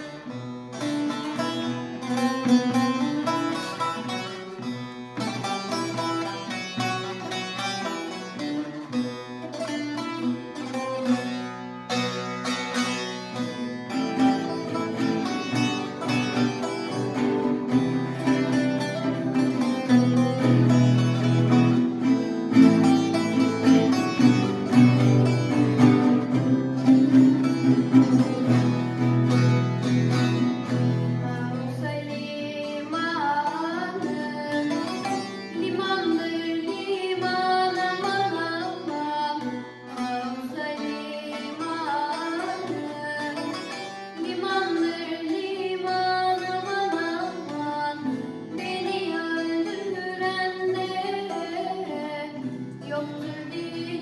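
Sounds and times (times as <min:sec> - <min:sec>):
acoustic guitar: 0:00.0 - 0:54.0
lute playing folk tune: 0:00.0 - 0:54.0
person singing: 0:31.2 - 0:54.0.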